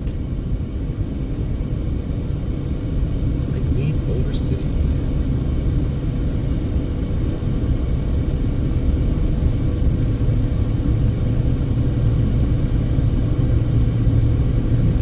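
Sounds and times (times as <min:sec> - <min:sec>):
car driving at road speed: 0:00.4 - 0:15.0.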